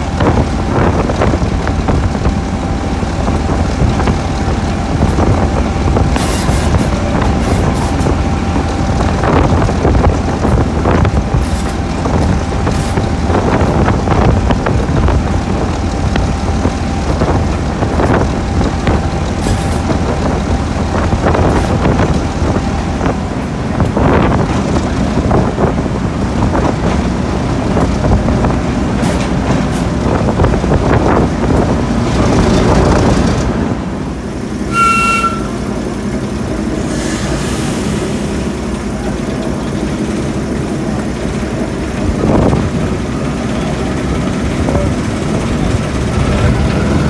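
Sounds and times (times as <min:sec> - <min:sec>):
wind on microphone: 0:00.0 - 0:34.3, 0:41.9 - 0:43.0
train clanks: 0:00.0 - 0:47.0
train rumble: 0:00.0 - 0:47.0.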